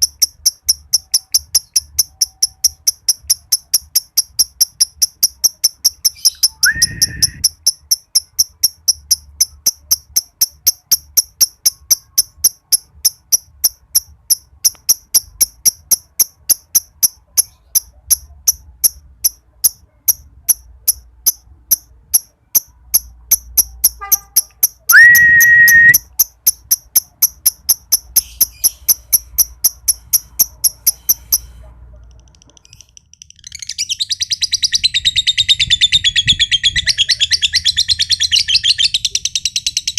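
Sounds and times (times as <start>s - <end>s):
lovebird shrill chattering trill: 0.0s - 13.4s, 19.6s - 31.5s, 32.6s - 39.9s
cricket-like ticking chirps: 0.0s - 39.9s
short rising whistles: 6.4s - 7.4s, 24.9s - 26.0s.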